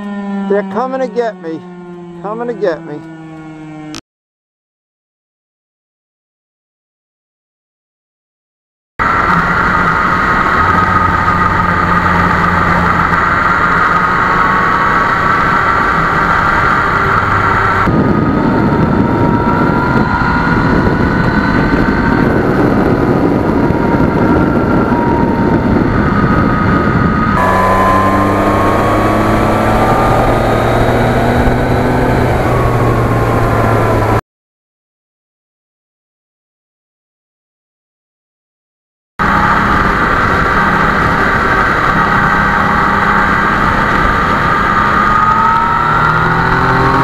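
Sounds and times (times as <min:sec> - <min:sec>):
motorcycle engine running: 0:09.0 - 0:34.2, 0:39.2 - 0:47.0
rush of noise: 0:09.0 - 0:34.2, 0:39.2 - 0:47.0.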